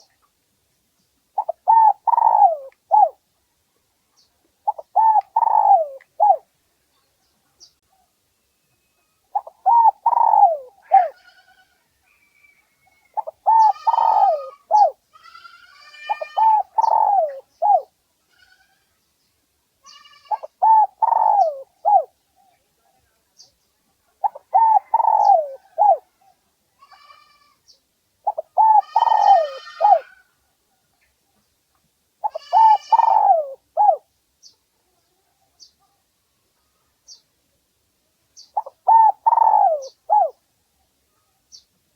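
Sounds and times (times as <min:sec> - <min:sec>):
dove cooing: 0:01.4 - 0:03.2, 0:04.6 - 0:06.5, 0:09.3 - 0:11.2, 0:13.1 - 0:15.0, 0:15.9 - 0:17.9, 0:20.3 - 0:22.5, 0:24.2 - 0:26.2, 0:28.2 - 0:30.2, 0:32.2 - 0:34.1, 0:38.6 - 0:40.4.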